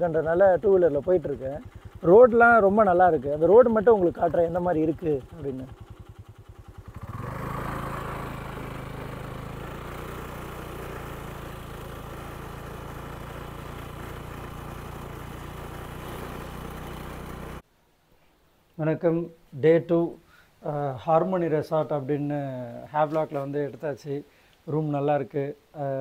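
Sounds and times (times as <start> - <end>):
scooter engine running: 0.0 - 17.6.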